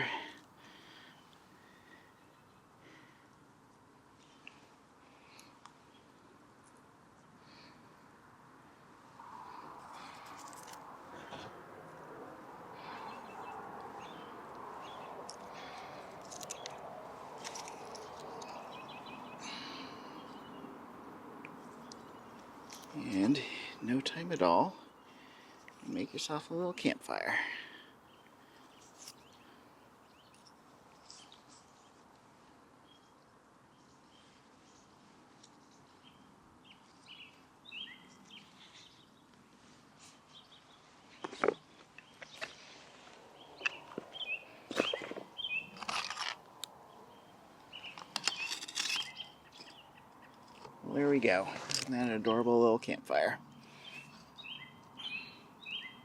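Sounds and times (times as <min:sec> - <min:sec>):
bird chirping: 0:09.6 - 0:27.0, 0:32.8 - 0:39.4, 0:40.2 - 0:46.1, 0:46.7 - 0:56.0.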